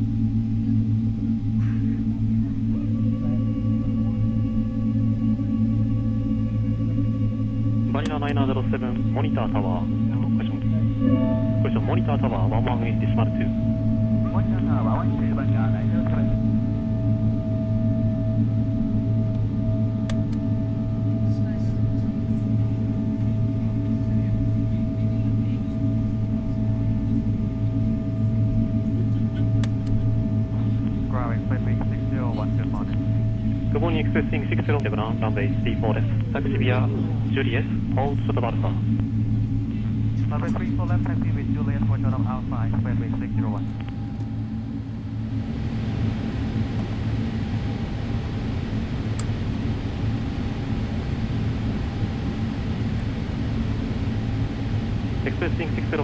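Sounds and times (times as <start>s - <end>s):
aircraft cabin engine drone: 0.0s - 56.0s
faint steady tone: 0.0s - 56.0s
faint steady whine: 0.0s - 56.0s.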